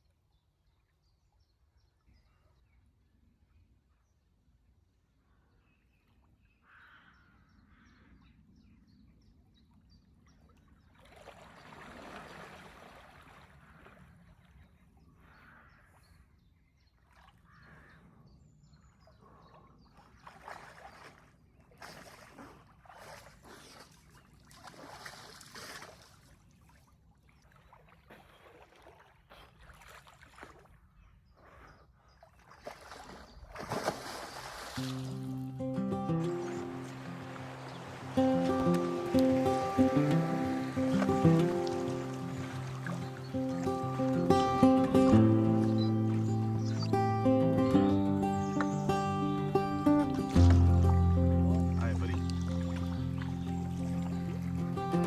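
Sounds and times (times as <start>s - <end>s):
water splashing around canoe: 10.3s - 15.1s, 19.1s - 49.0s, 49.9s - 55.0s
water trickling: 33.6s - 55.0s.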